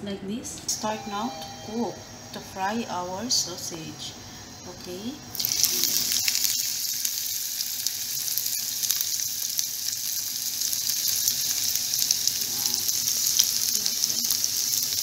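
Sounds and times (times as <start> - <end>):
batter sizzling in hot oil: 5.3 - 15.0.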